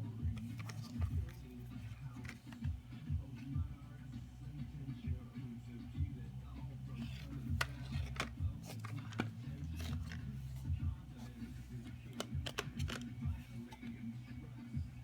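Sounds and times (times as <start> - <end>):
steady low hum: 0.0 - 15.0
packaging rustles: 0.4 - 2.6, 7.0 - 10.6
plastic case clicks: 0.4 - 2.7, 7.0 - 10.3, 11.8 - 13.9.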